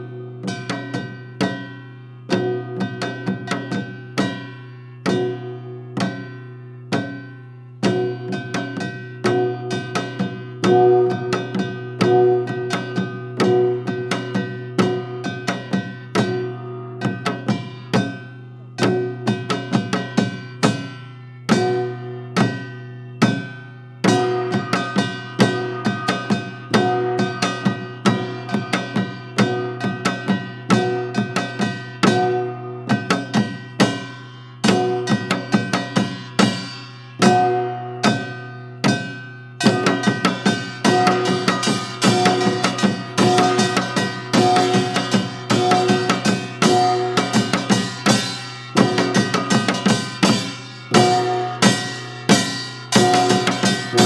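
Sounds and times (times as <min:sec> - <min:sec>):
drums: 0:00.0 - 0:54.0
drum kit hits: 0:38.9 - 0:54.0.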